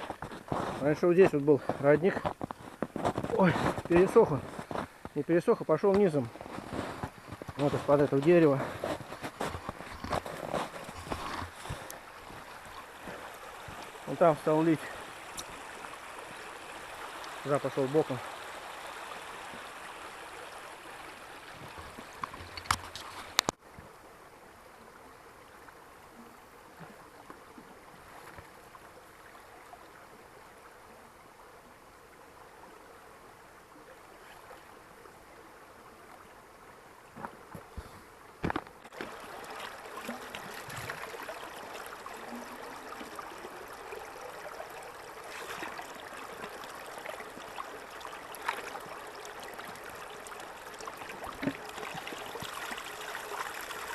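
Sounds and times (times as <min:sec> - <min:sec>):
spring water trickling: 0:00.0 - 0:23.6, 0:38.8 - 0:53.9.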